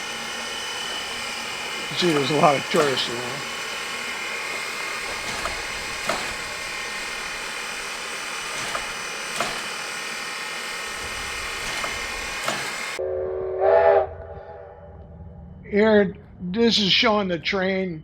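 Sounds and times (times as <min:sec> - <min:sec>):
sharp clicks: 0:00.0 - 0:13.0
steam locomotive hiss and hum: 0:00.0 - 0:13.0
steam locomotive whistle: 0:00.0 - 0:14.7.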